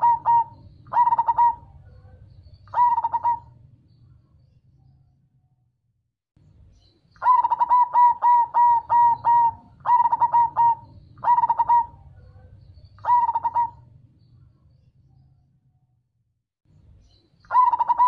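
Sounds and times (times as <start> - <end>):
dove cooing: 0.0 - 3.7, 7.2 - 14.0, 17.5 - 18.0.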